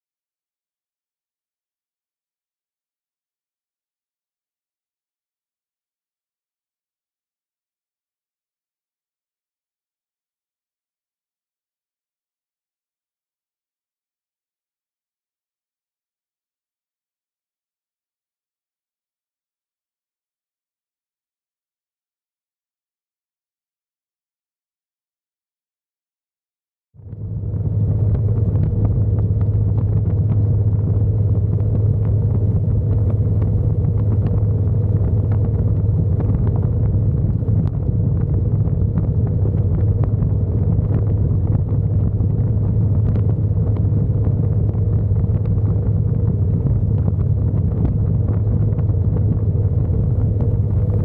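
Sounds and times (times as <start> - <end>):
motorcycle engine rumble: 27.0 - 51.0.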